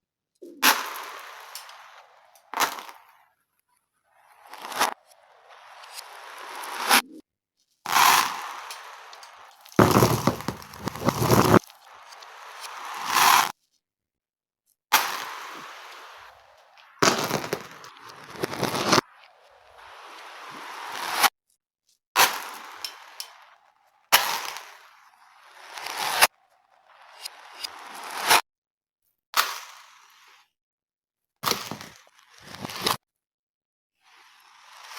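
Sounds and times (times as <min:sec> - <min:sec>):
reversed beads clattering: 0:09.5 - 0:11.7.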